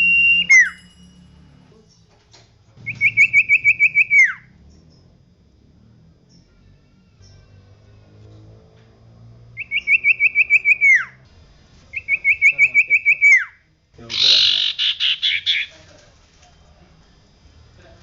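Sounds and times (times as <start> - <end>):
bird whistled song: 0.0 - 0.9, 2.8 - 4.5, 9.6 - 11.2, 11.9 - 15.7
bird buzzy chattering: 12.0 - 15.8.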